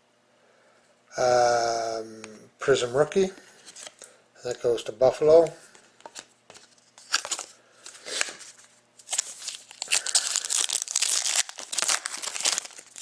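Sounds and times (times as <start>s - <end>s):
wrapper tearing and crinkling: 7.0s - 13.0s.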